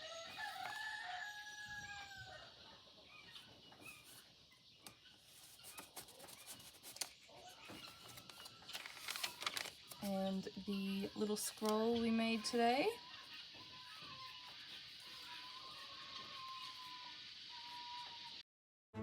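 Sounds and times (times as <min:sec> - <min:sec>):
rooster crowing: 0:00.0 - 0:02.7
paper pages turning: 0:00.3 - 0:00.8, 0:05.3 - 0:10.2.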